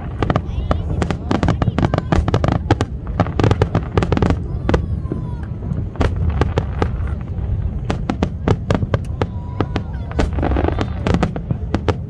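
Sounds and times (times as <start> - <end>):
fireworks cracking and popping: 0.0 - 12.0
low rumble: 2.2 - 11.7.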